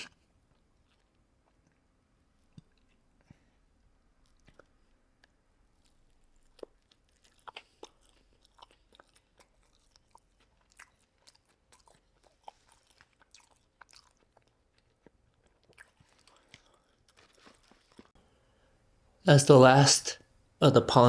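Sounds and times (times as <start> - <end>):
chewing with mouth clicks: 2.4 - 3.6, 4.2 - 18.2.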